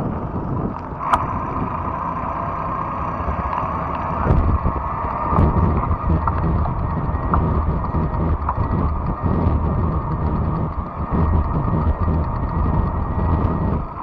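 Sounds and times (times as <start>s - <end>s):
wind buffeting microphone: 0.0s - 2.0s, 3.9s - 14.0s
steady whine: 0.0s - 14.0s
sharp ticks: 3.5s - 14.0s.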